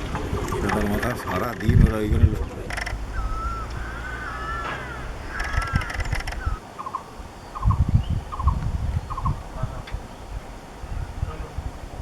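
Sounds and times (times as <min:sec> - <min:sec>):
low rumbling thumps: 0:00.0 - 0:06.6
harsh rasping bird call: 0:02.7 - 0:09.4.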